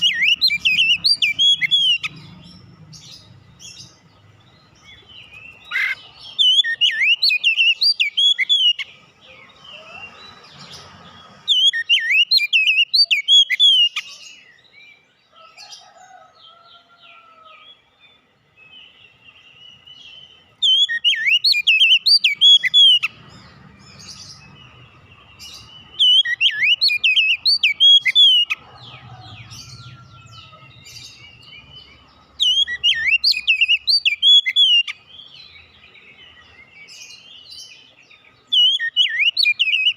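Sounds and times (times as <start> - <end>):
bird singing whistles: 5.2 - 8.9, 11.5 - 14.0, 20.1 - 23.1, 26.0 - 28.5, 32.4 - 35.0, 38.6 - 39.9
faint bird calls: 5.2 - 11.2.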